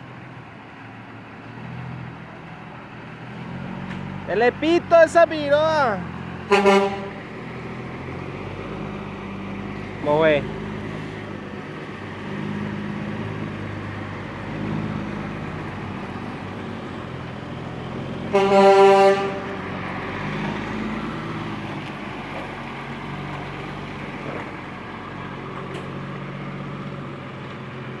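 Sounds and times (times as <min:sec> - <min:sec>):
truck engines running: 0:00.0 - 0:28.0
loud horn blast: 0:06.4 - 0:07.3, 0:18.3 - 0:19.7.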